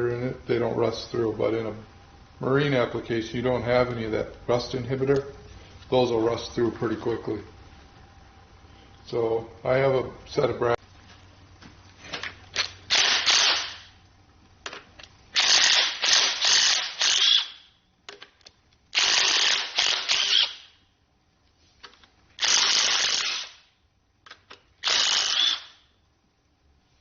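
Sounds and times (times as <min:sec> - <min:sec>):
pneumatic wrench rattling: 0:12.6 - 0:13.9, 0:15.3 - 0:17.6, 0:19.0 - 0:20.7, 0:22.4 - 0:23.6, 0:24.8 - 0:25.8.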